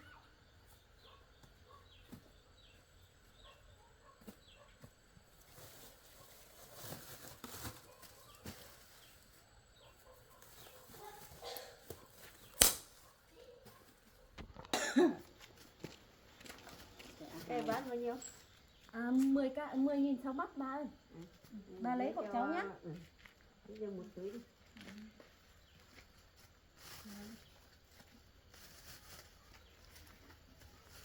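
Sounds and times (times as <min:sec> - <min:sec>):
faint high bird chirps: 0:00.0 - 0:04.7.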